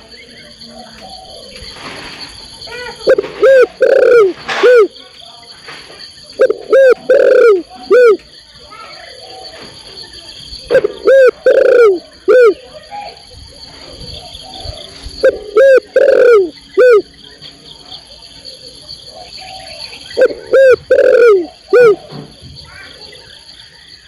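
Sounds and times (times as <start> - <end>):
dove cooing: 3.0 - 5.0, 6.4 - 8.2, 10.6 - 12.6, 13.8 - 17.1, 18.4 - 22.4.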